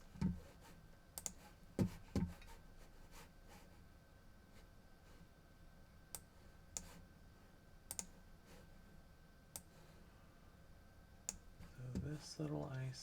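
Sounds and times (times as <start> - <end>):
computer mouse clicks: 1.2 - 1.4, 6.1 - 7.0, 7.9 - 8.2, 9.5 - 9.7.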